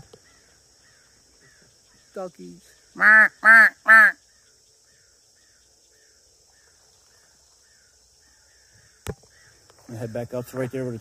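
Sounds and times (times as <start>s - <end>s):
faint chirps: 0.0s - 11.0s
insect hum: 0.0s - 11.0s
loud bird calls: 0.0s - 11.0s.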